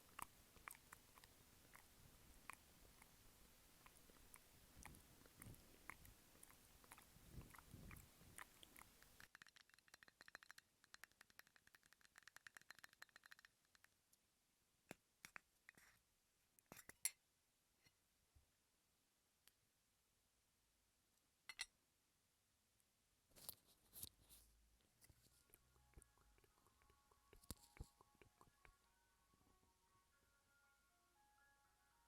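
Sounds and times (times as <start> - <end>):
wet mouth clicks and smacks: 0.1 - 3.1, 3.8 - 13.9
fast faint crackling clicks: 3.8 - 14.0, 25.4 - 28.8.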